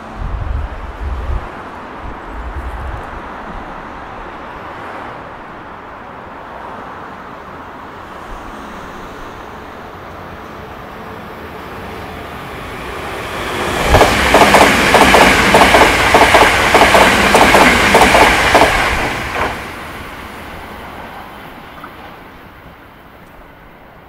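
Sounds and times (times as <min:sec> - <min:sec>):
train wheels clacking over rail joints: 0:13.8 - 0:19.7.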